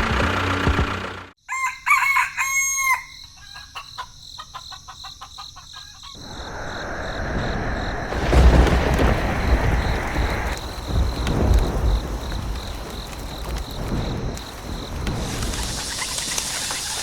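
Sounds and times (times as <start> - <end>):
rooster crowing: 1.4 - 3.4
rushing noise: 6.2 - 17.0.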